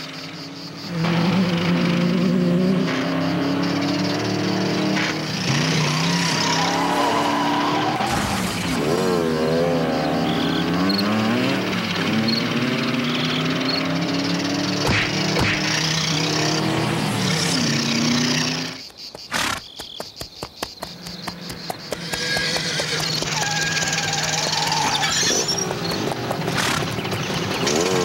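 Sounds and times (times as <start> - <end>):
racing car engine revving: 0.2 - 18.8, 22.3 - 28.0
tyre screeches: 5.0 - 8.7, 21.9 - 28.0.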